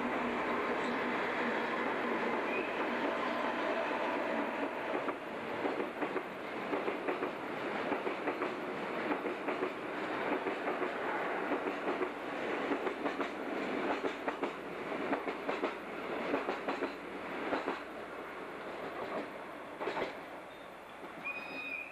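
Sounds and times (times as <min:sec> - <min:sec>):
freight train rumble and rattle: 0:00.0 - 0:21.3
wheels clicking over rail joints: 0:04.6 - 0:10.9, 0:11.5 - 0:17.9, 0:18.9 - 0:20.2.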